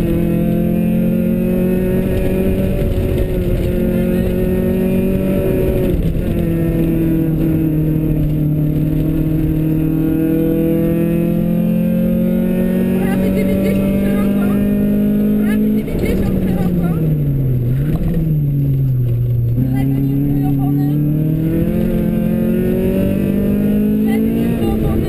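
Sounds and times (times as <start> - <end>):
rally car engine revving: 0.0 - 25.0
low rumble: 13.2 - 23.0.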